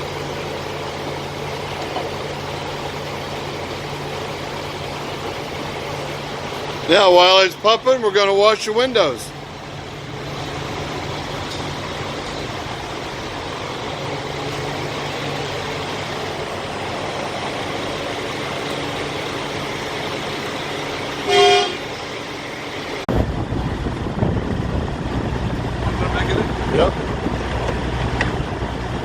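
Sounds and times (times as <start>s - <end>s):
heavy low rumble: 0.0s - 29.0s
vehicle engines idling: 0.0s - 29.0s
vehicle horn toot: 21.2s - 21.9s.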